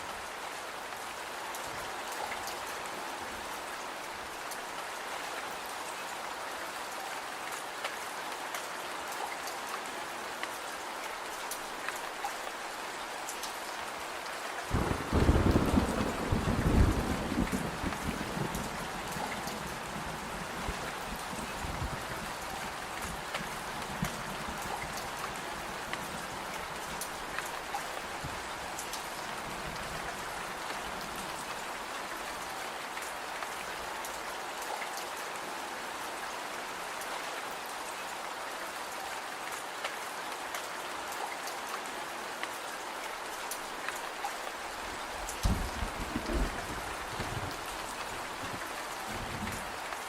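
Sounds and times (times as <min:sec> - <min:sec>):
steady rain falling: 0:00.0 - 0:50.0.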